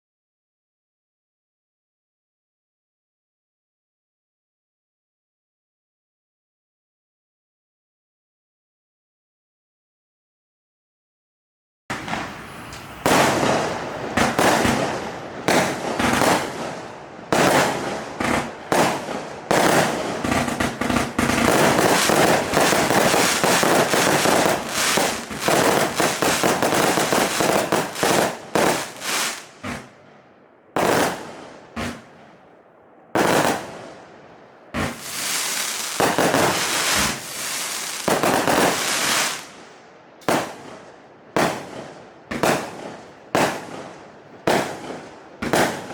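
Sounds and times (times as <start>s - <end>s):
firework cake shots firing: 11.9s - 30.0s, 30.8s - 32.2s, 34.8s - 39.6s, 40.2s - 40.8s, 44.5s - 45.9s.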